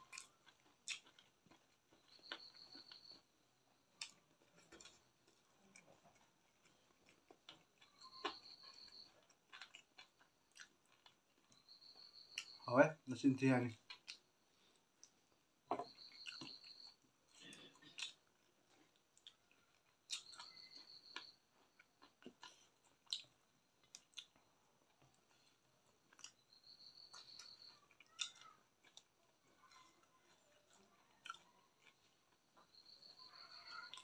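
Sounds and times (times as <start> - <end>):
chewing with mouth clicks: 0.0 - 12.7, 13.8 - 34.0.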